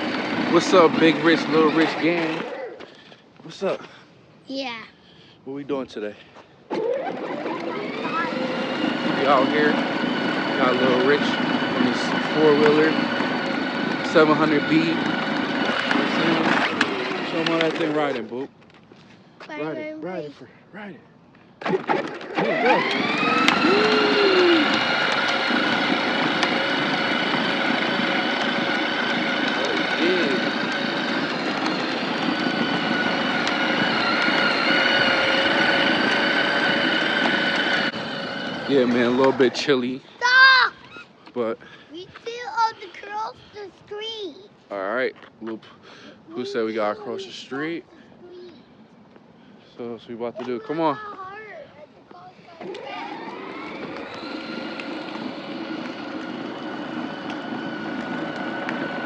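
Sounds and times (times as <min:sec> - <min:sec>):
toy four-wheeler motor whining: 0:00.0 - 0:02.9, 0:06.7 - 0:18.4, 0:21.6 - 0:41.1, 0:46.3 - 0:47.7, 0:52.2 - 0:59.0.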